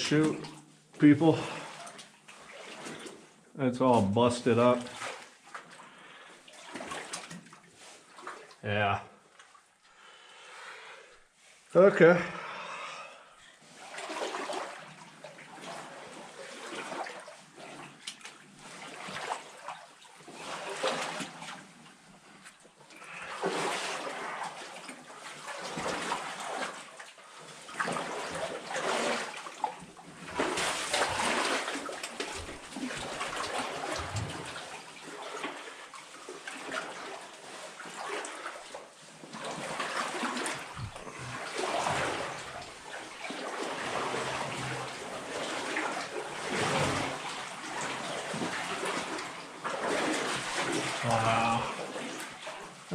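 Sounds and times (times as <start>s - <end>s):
water sloshing and splashing: 0.0s - 8.6s, 9.2s - 11.7s, 13.4s - 52.9s.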